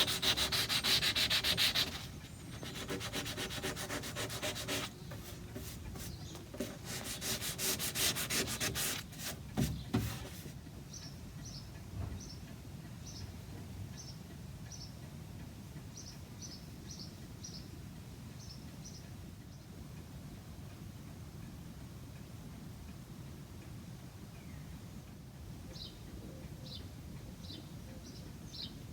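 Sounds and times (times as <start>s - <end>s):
sandpaper rubbing on wood: 0.0s - 10.6s.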